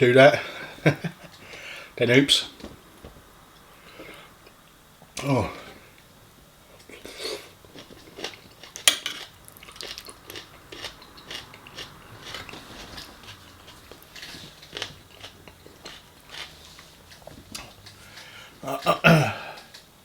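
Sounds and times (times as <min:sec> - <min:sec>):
person chewing food: 0:06.7 - 0:18.9.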